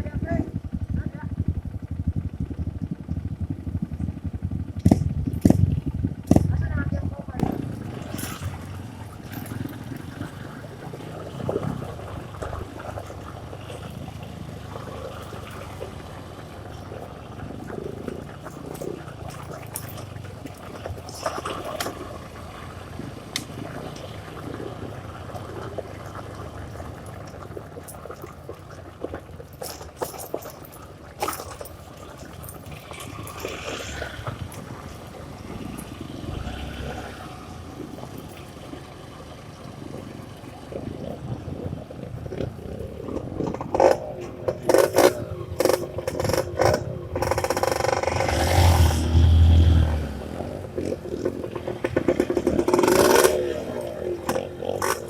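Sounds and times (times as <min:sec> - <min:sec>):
dirt bike engine at low revs: 0:00.0 - 0:55.0
splashing water: 0:07.4 - 0:55.0
knocks and clatter: 0:50.8 - 0:55.0.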